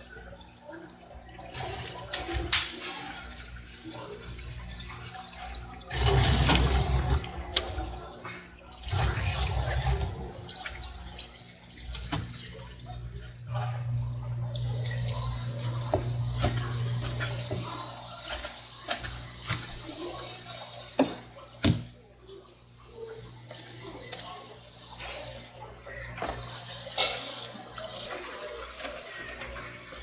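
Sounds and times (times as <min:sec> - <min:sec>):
tap water splashing into sink: 0:00.2 - 0:13.3, 0:14.4 - 0:22.0.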